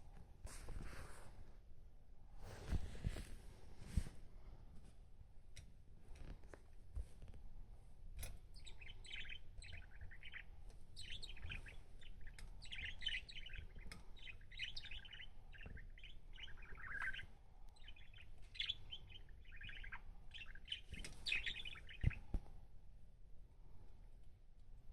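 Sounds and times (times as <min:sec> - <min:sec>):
budgerigar chattering and warbling: 0:08.6 - 0:22.2.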